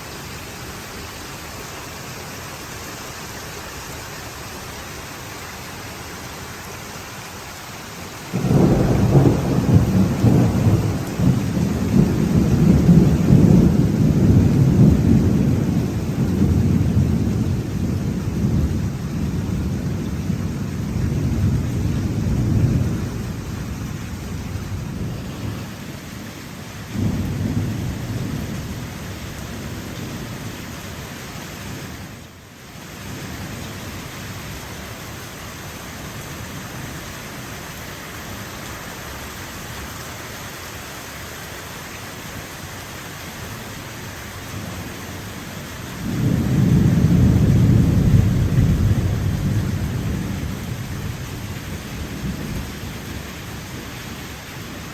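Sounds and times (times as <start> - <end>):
heavy rain: 0.0 - 54.9
rolling thunder: 8.3 - 25.8, 26.9 - 30.6, 46.0 - 54.0.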